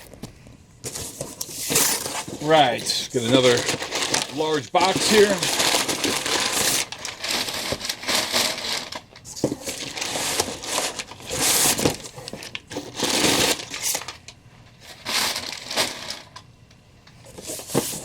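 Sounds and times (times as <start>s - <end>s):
cardboard box rustling and scraping: 0.8s - 14.1s.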